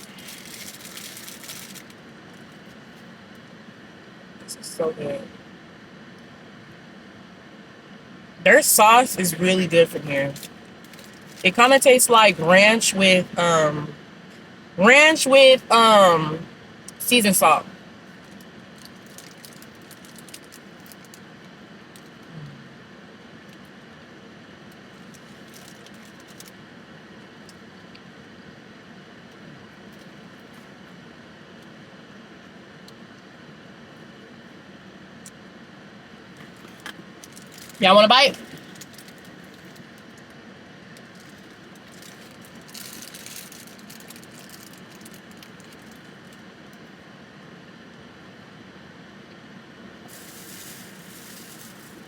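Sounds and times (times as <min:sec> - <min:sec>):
rustling: 0:00.0 - 0:02.7, 0:50.1 - 0:52.0
chewing and handling food: 0:00.0 - 0:03.4, 0:10.3 - 0:11.5, 0:18.1 - 0:22.3, 0:24.7 - 0:26.6, 0:36.3 - 0:37.8, 0:38.4 - 0:46.8
background hiss: 0:50.0 - 0:52.0.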